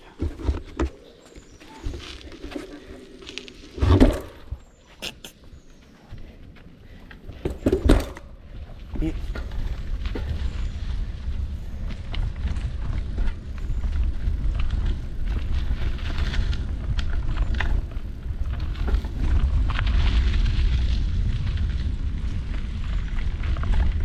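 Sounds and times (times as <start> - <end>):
bike tyres on dirt trail: 0.0 - 24.0
bike clicks and rattles: 2.0 - 4.8, 6.5 - 24.0
wind buffeting microphone: 5.6 - 24.0.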